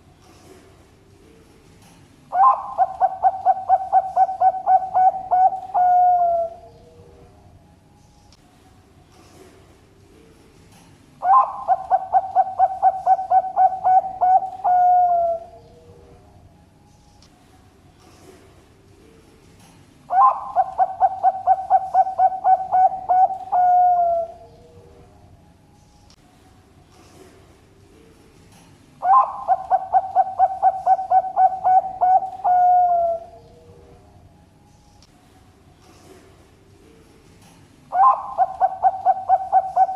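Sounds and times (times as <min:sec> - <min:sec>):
dove cooing: 0:02.3 - 0:07.2, 0:11.2 - 0:16.2, 0:20.1 - 0:25.0, 0:29.0 - 0:34.0, 0:37.9 - 0:39.9.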